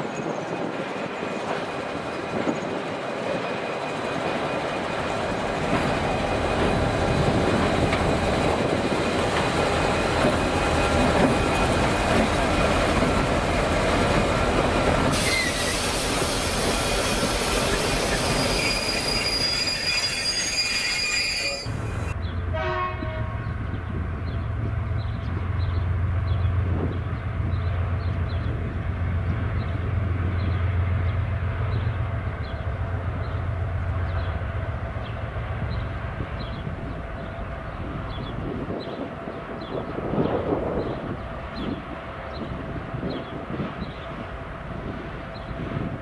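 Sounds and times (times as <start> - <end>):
train rumbling past: 0.0 - 46.0
locomotive engine drone: 1.8 - 19.5
high steady squealing: 9.0 - 22.2.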